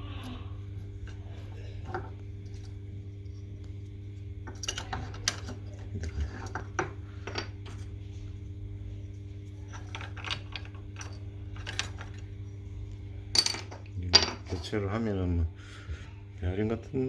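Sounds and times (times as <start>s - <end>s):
steady low hum: 0.0s - 17.0s
hard parts clinking: 13.3s - 14.8s.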